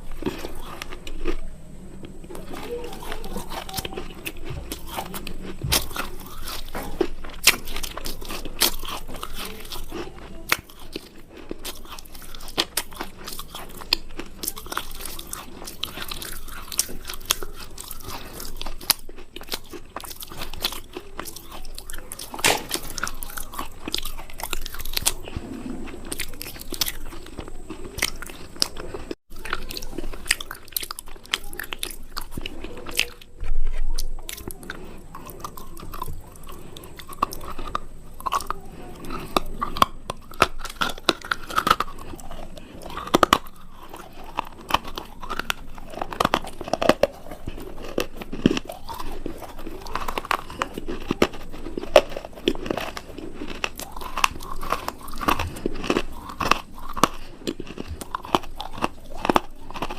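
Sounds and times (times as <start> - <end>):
crunchy chewing: 0.0 - 59.9.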